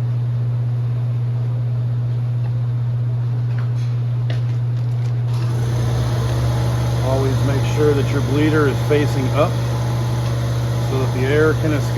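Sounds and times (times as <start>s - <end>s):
low machine hum: 5.0s - 11.9s.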